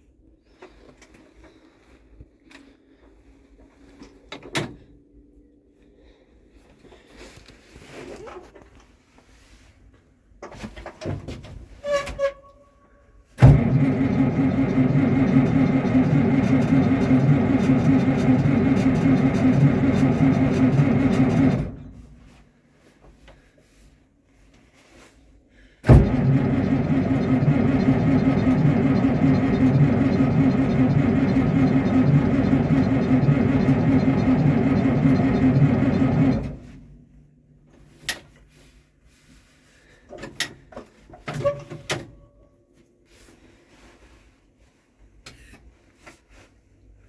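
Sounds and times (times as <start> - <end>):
tractor engine: 13.4 - 22.4, 25.8 - 37.1
sharp clicks and knocks: 25.9 - 36.7.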